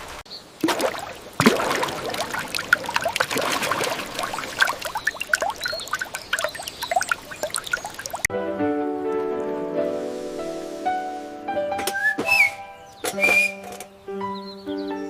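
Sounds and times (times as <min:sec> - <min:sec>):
water trickling and splashing: 0:00.0 - 0:08.3
bubbly drips: 0:00.6 - 0:08.3
steady hiss: 0:09.8 - 0:11.6.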